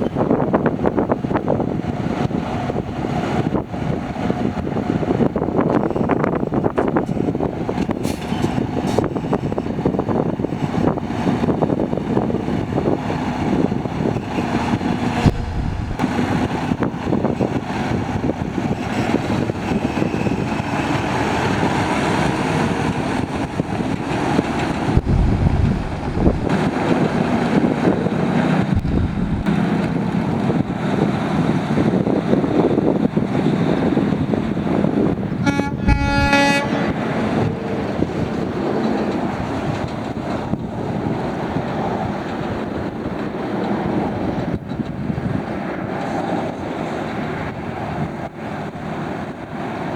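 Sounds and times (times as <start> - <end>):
truck diesel engine running: 15.2 - 16.4, 24.5 - 26.7, 28.6 - 29.9.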